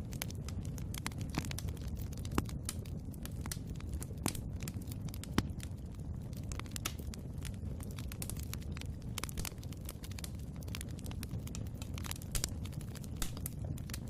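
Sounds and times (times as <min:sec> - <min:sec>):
logs crackling and popping: 0:00.0 - 0:14.0
low rumble of flames: 0:00.0 - 0:14.0.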